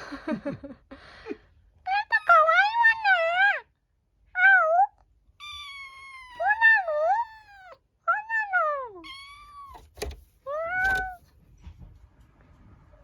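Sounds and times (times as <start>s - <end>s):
kitten meowing: 5.4s - 7.8s, 9.0s - 9.8s.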